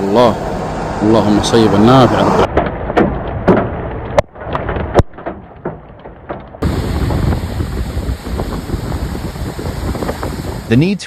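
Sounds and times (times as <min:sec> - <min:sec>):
scattered knocks: 0:02.5 - 0:03.8, 0:04.4 - 0:06.6
wind buffeting microphone: 0:06.5 - 0:11.0.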